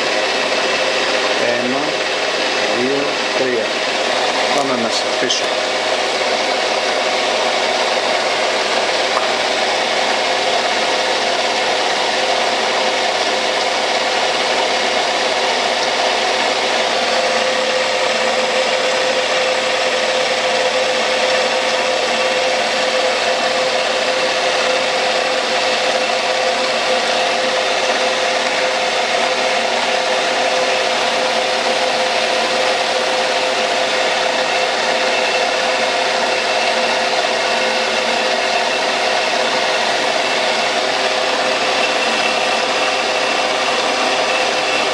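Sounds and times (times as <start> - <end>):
lathe running hum: 0.0 - 44.9
lathe tool cutting metal: 0.0 - 44.9
steady whine: 0.0 - 44.9.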